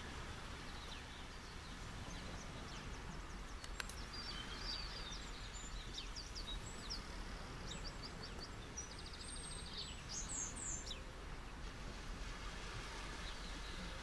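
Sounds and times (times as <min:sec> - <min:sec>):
ocean waves: 0:00.0 - 0:14.0
small birds chirping: 0:00.7 - 0:11.6.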